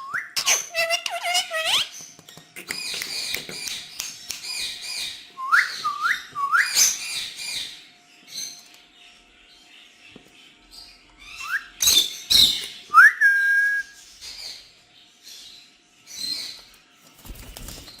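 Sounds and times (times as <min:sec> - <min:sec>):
parrots squawking and chirping: 0:00.3 - 0:05.9, 0:10.7 - 0:12.8.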